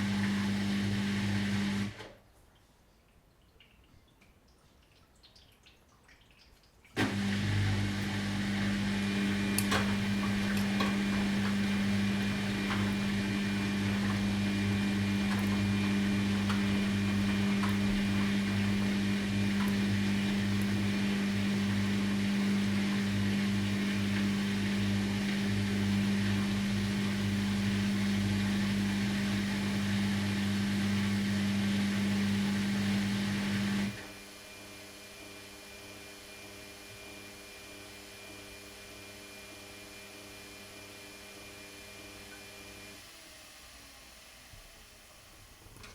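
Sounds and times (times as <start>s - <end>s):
washing machine humming: 0.0s - 2.2s, 4.9s - 45.9s.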